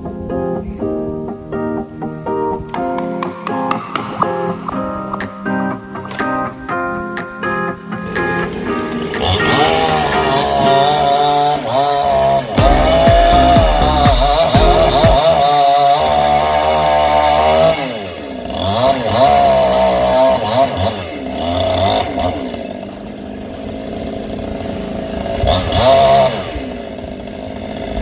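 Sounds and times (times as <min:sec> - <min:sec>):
chainsaw engine revving: 0:08.0 - 0:28.0.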